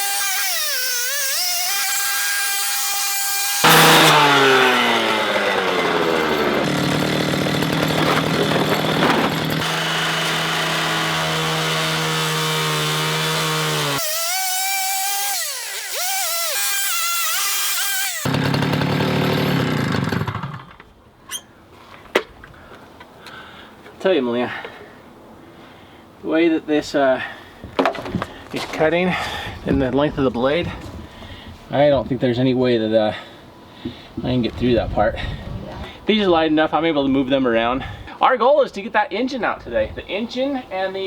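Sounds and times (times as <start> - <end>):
power saw cutting metal: 0.0 - 20.8.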